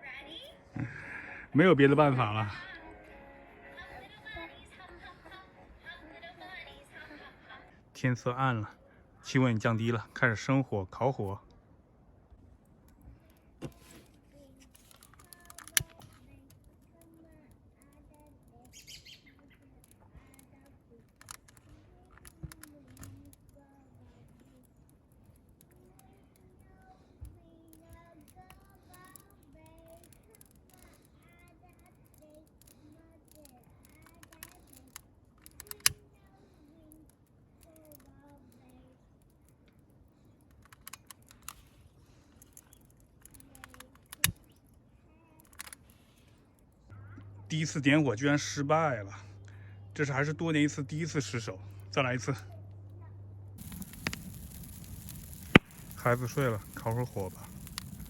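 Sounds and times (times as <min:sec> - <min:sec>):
campfire crackling: 0:00.0 - 0:58.0
sharp wood snap: 0:34.0 - 0:36.0, 0:53.6 - 0:58.0
sharp clicks and knocks: 0:40.5 - 0:41.6, 0:42.4 - 0:44.7.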